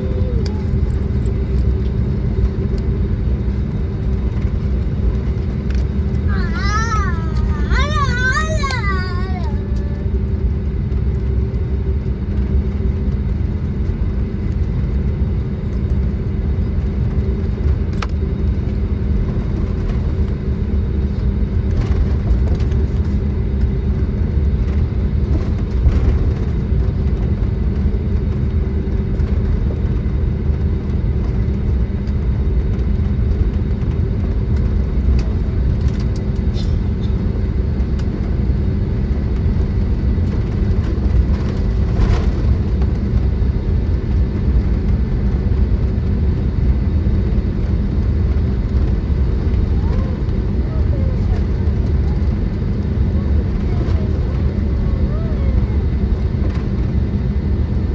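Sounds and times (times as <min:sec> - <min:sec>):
steady hum: 0:00.0 - 0:29.5
aircraft taxiing rumble: 0:00.0 - 0:57.9.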